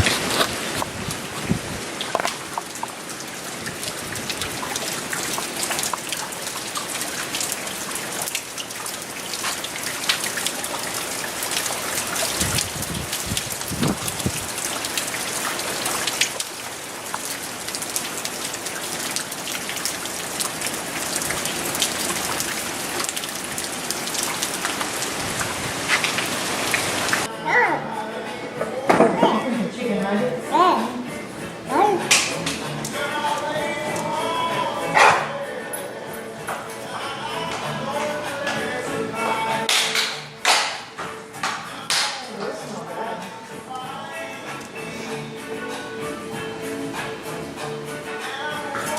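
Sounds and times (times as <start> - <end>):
heavy rain falling: 0.0 - 27.3.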